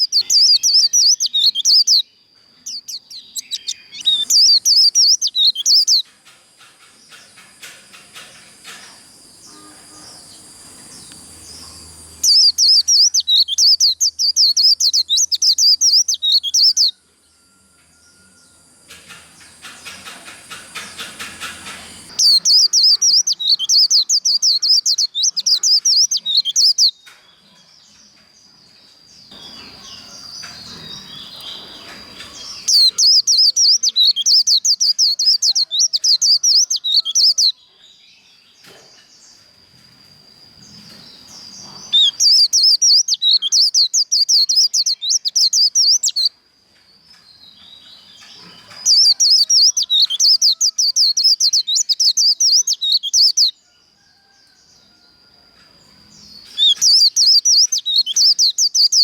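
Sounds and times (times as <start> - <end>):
bird singing a rapid high trill: 0.0 - 6.0, 9.2 - 18.8, 19.5 - 27.0, 29.2 - 37.8, 40.4 - 46.3, 47.5 - 53.6, 56.2 - 59.0.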